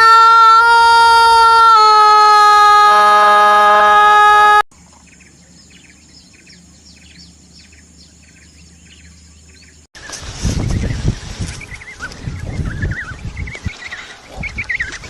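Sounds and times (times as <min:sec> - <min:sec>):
small birds chirping: 0:04.8 - 0:15.0.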